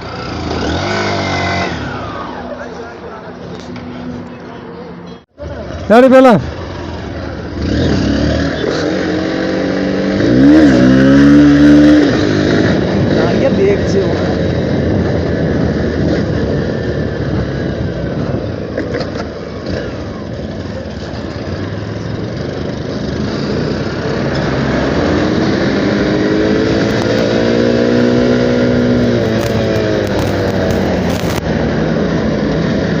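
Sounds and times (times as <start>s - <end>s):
wind and road roar: 0.0s - 33.0s
motorcycle engine running: 26.7s - 33.0s.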